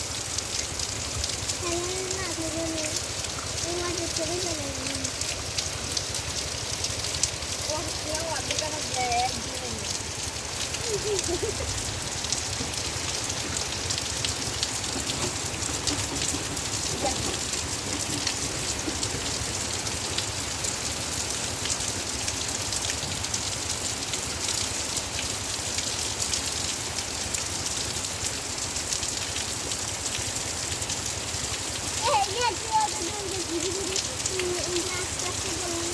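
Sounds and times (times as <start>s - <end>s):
heavy rain falling: 0.0s - 35.9s.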